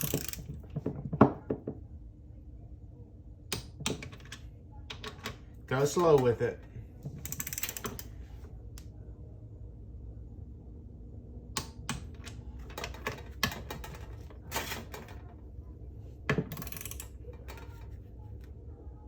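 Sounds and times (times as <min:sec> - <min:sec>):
torque wrench clicks: 0:00.0 - 0:00.4, 0:16.6 - 0:17.1
low hum: 0:06.4 - 0:19.0.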